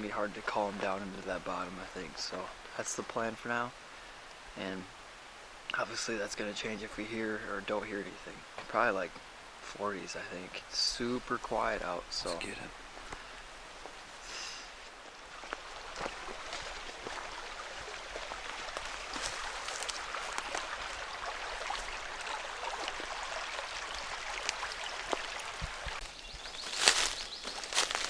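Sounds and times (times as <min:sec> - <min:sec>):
creek running: 0:00.0 - 0:28.0
light clicks and crackles: 0:18.7 - 0:20.7.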